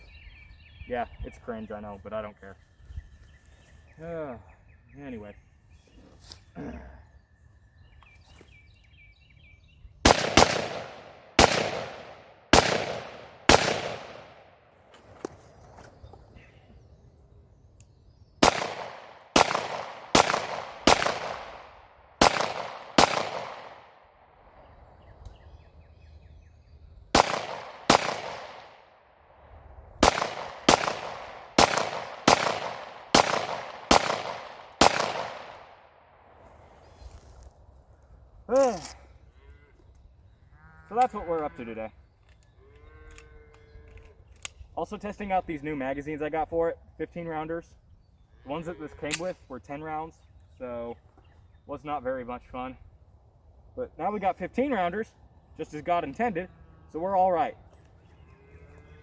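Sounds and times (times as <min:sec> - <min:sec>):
gunshots with echo: 0:10.1 - 0:14.5, 0:18.4 - 0:24.0, 0:27.1 - 0:28.8, 0:30.0 - 0:35.7.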